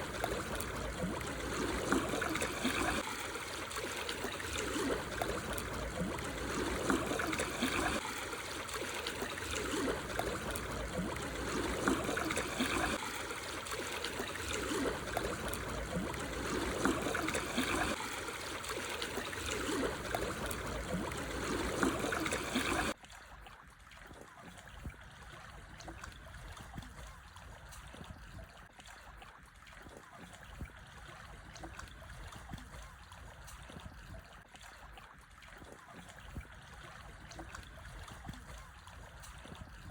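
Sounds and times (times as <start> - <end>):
waves lapping over stones: 0.0 - 23.0.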